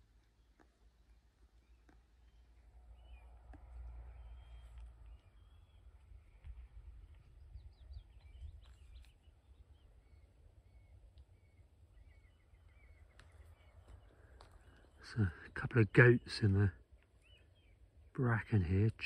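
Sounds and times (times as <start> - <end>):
faint high bird calls: 0.2 - 19.0
wind rumble on microphone: 3.6 - 9.8.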